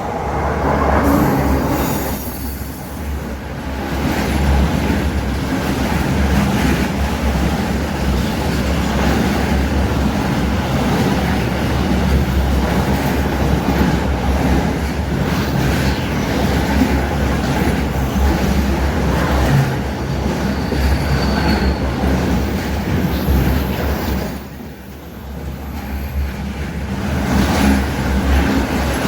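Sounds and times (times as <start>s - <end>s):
high wheel squeal: 0.0s - 3.3s, 20.0s - 26.4s
train wheels rumbling on rail: 0.0s - 29.0s.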